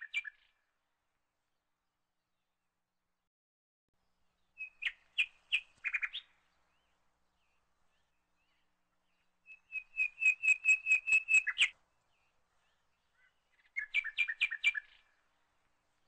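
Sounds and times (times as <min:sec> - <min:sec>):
bird singing rapid high chirps: 0:04.5 - 0:06.4, 0:09.5 - 0:11.8, 0:12.7 - 0:15.1.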